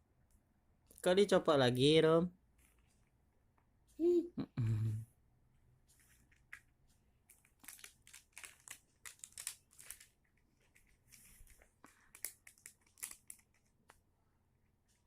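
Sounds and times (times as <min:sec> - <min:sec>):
plastic toy crinkling and crackling: 0:06.0 - 0:14.0.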